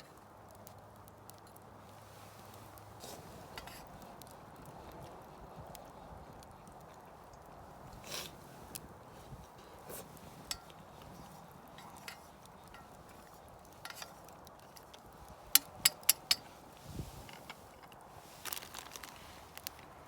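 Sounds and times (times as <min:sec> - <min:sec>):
camp cookware clinking: 0:01.5 - 0:04.3, 0:07.7 - 0:20.0.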